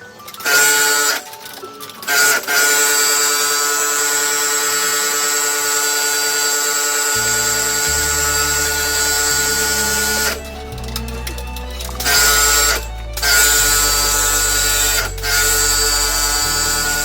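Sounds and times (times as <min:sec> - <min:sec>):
background music bass notes: 0:07.0 - 0:17.0.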